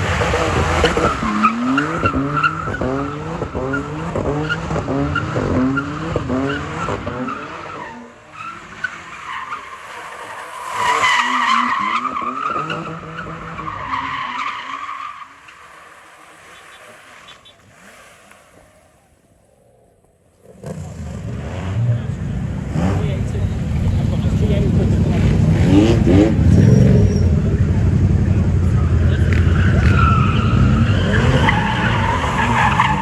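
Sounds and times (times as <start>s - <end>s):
car engine revving: 0.0s - 18.8s, 20.4s - 33.0s
tyres squealing: 29.1s - 33.0s.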